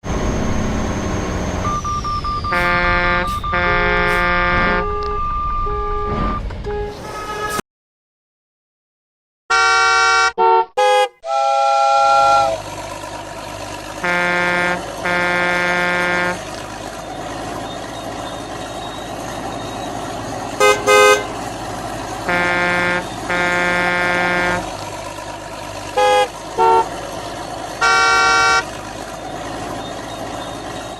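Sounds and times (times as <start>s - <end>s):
engine-like drone: 0.0s - 7.6s, 11.7s - 30.9s
vehicle horn honking: 2.5s - 7.6s, 9.5s - 12.7s, 14.0s - 16.5s, 20.6s - 21.4s, 22.2s - 24.8s, 25.9s - 27.0s, 27.8s - 28.7s.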